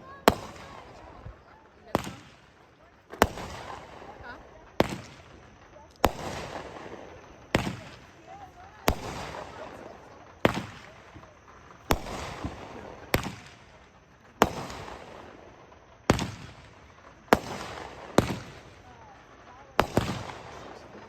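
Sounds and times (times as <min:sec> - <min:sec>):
firework bangs with echo: 0:00.0 - 0:21.0.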